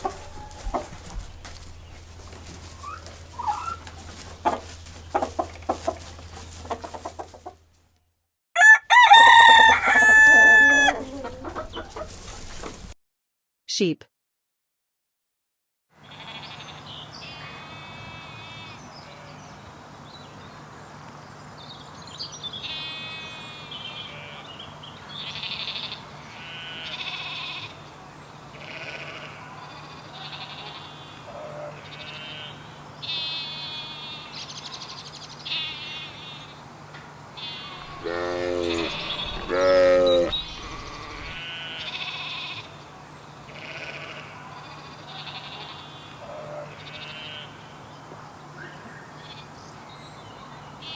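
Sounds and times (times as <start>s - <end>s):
loud deep sheep bleats: 16.0s - 19.5s, 22.6s - 27.8s, 28.5s - 36.6s, 37.4s - 42.8s, 43.4s - 47.8s, 49.2s - 49.6s
sheep bleating: 16.1s - 19.5s, 22.6s - 27.8s, 28.5s - 36.6s, 37.4s - 42.8s, 43.4s - 47.8s, 49.2s - 49.6s.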